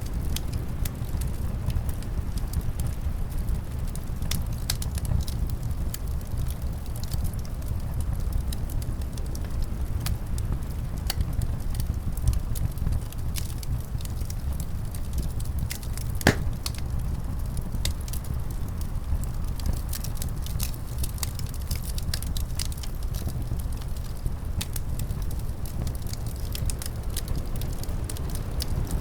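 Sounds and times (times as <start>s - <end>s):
wood fire crackling: 14.9s - 28.9s.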